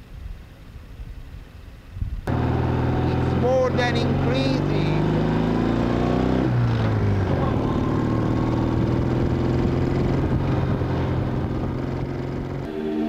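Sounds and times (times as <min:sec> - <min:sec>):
car engine running: 0:02.3 - 0:12.7.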